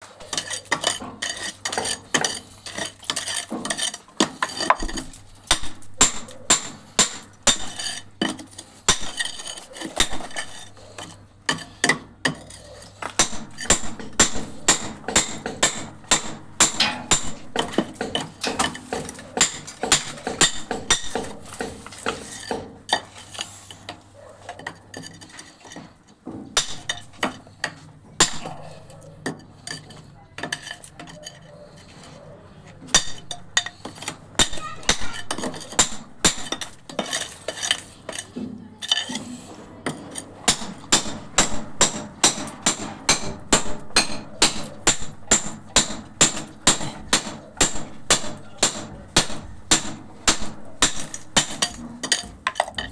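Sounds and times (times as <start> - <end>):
metal tools clinking: 12.5 - 19.8.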